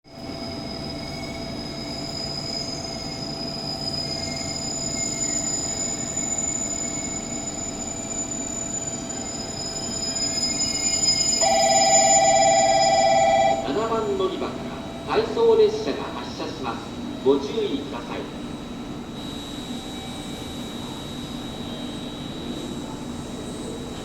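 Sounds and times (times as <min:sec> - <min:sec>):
train electrical whine: 0:00.1 - 0:24.0
warbling bell ringing: 0:11.4 - 0:13.8.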